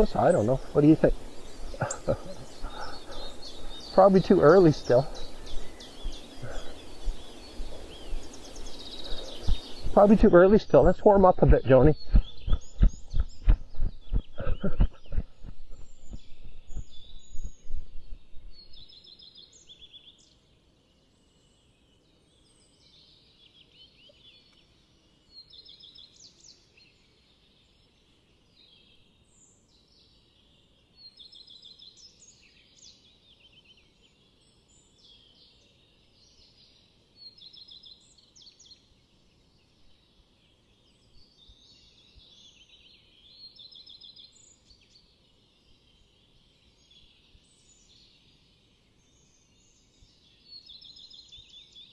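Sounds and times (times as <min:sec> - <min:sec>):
songbirds chirping and trilling: 0:00.0 - 0:51.9
loud low thumps: 0:10.8 - 0:18.7.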